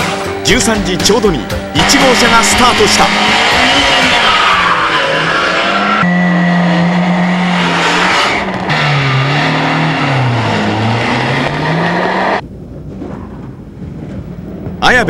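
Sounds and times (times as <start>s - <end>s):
rally car engines revving: 1.5s - 12.4s.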